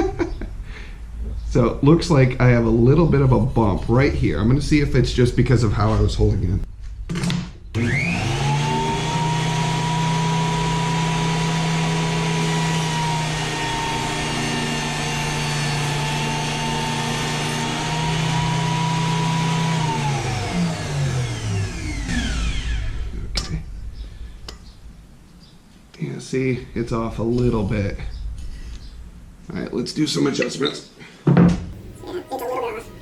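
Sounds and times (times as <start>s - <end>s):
jointer motor whine: 7.7s - 23.0s.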